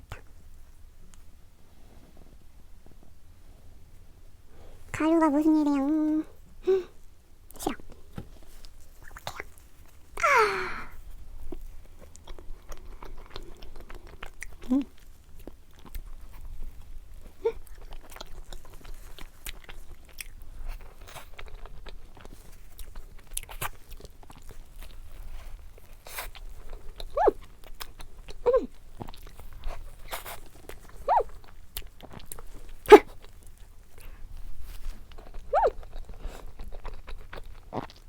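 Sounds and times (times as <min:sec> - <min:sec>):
person chewing food: 0:07.5 - 0:10.5, 0:11.1 - 0:38.0.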